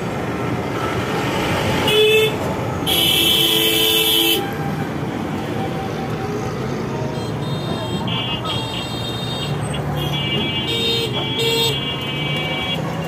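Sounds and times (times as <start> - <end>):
street traffic: 0.0 - 13.0
vehicle horns honking: 1.9 - 4.5, 7.2 - 13.0.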